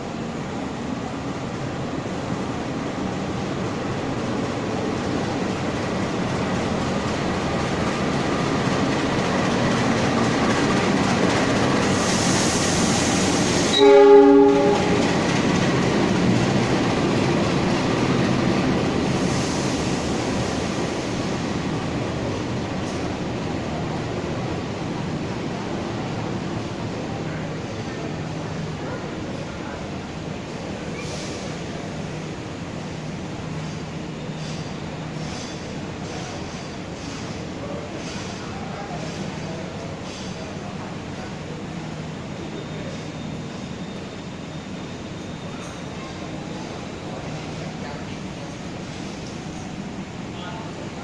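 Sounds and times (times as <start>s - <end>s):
train wheels rumbling on rails: 0.0s - 51.0s
train horn blast: 13.7s - 15.1s.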